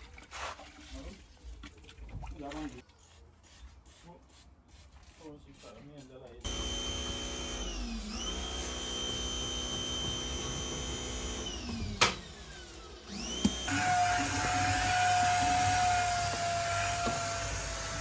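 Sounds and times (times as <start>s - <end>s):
electric motor whining: 6.5s - 18.0s.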